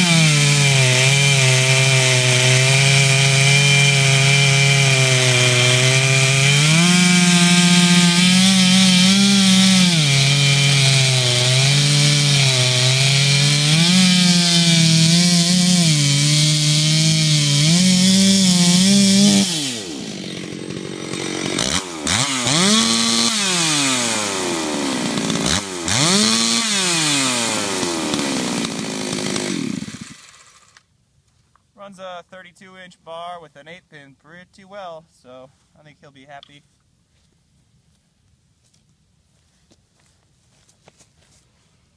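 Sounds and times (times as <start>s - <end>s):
chainsaw revving: 0.0s - 30.8s
chainsaw cutting wood: 0.0s - 30.9s.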